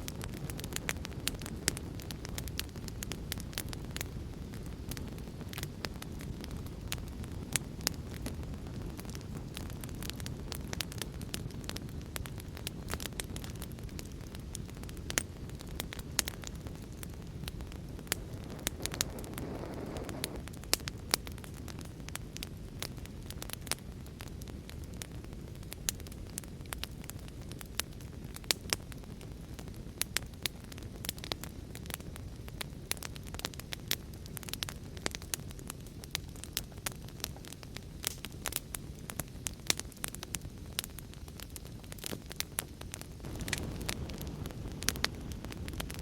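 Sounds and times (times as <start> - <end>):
wood fire crackling: 0.0 - 46.0.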